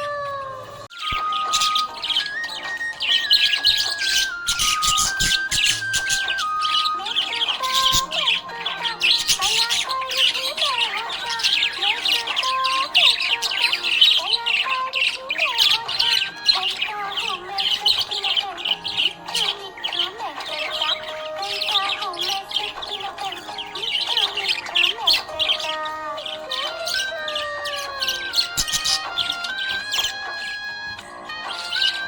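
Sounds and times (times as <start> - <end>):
parrots chattering and squawking: 0.0 - 32.0
soft background melody: 0.0 - 32.0.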